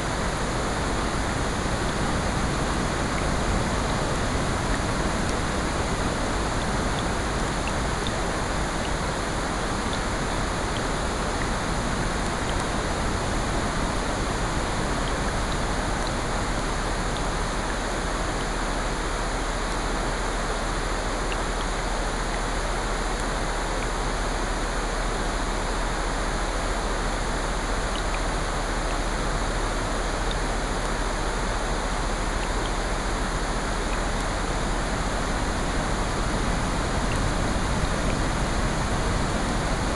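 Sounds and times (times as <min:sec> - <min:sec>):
falling rain: 0:00.0 - 0:39.9
ocean waves: 0:33.5 - 0:39.9.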